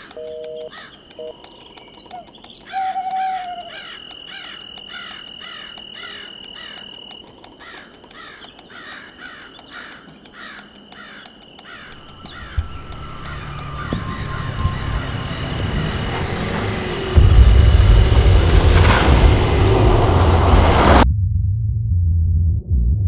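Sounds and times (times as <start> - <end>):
bird calling short falling notes: 0.0 - 20.4
high insect drone: 0.0 - 21.0
low rumble: 11.9 - 23.0.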